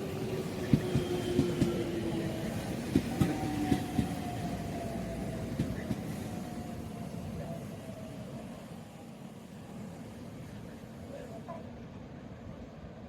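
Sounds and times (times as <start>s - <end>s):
train whine: 0.0s - 13.0s.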